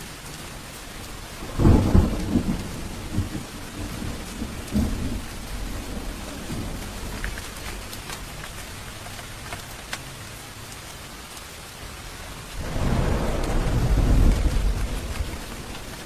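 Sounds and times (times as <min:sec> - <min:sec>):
steady rain: 0:00.0 - 0:16.0
thunder rumbling: 0:00.9 - 0:09.2, 0:12.5 - 0:16.0.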